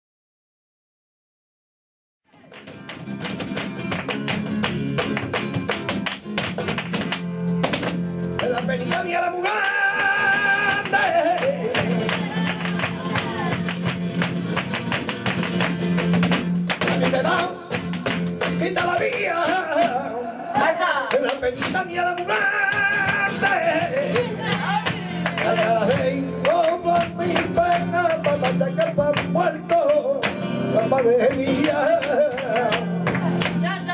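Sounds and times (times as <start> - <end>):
flamenco guitar strumming: 2.3 - 33.9
person singing: 8.4 - 13.7.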